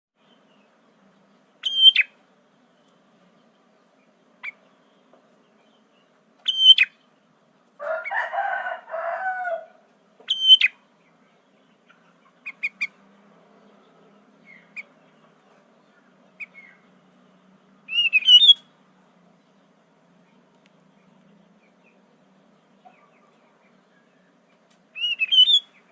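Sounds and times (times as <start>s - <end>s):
bird short sharp calls: 1.6s - 2.2s, 6.4s - 7.0s, 10.2s - 10.8s, 17.9s - 18.7s, 25.0s - 25.9s
bird warbling: 1.6s - 2.2s, 6.4s - 7.0s, 10.2s - 10.8s, 11.8s - 13.0s, 17.9s - 18.7s, 25.0s - 25.9s.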